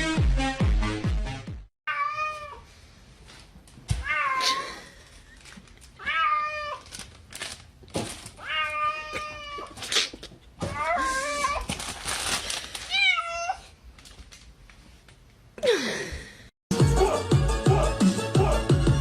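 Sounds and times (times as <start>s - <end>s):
electronic music with heavy beat: 0.0s - 1.7s, 16.7s - 19.0s.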